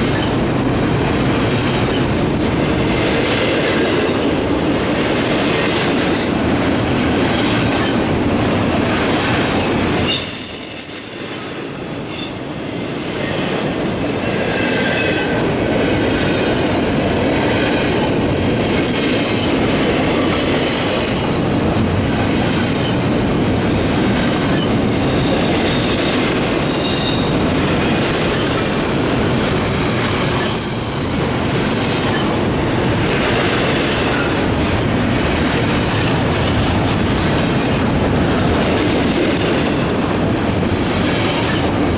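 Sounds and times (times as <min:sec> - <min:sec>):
freight cars rumbling on rails: 0:00.0 - 0:41.9
high-pitched wheel squeals: 0:10.0 - 0:12.5.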